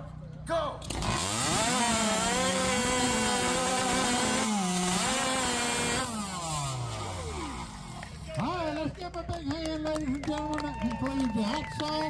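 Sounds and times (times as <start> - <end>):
chainsaw cutting timber: 0.8 - 8.7.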